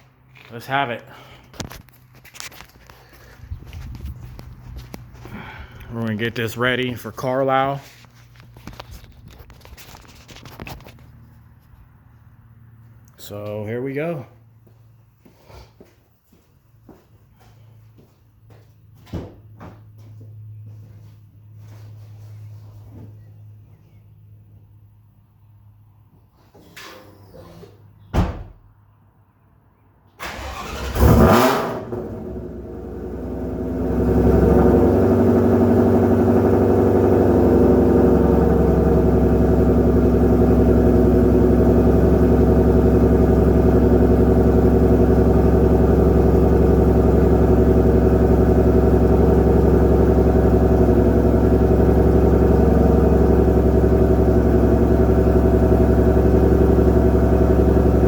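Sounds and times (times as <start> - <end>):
car engine idling loudly: 2.8 - 7.0, 30.4 - 58.0.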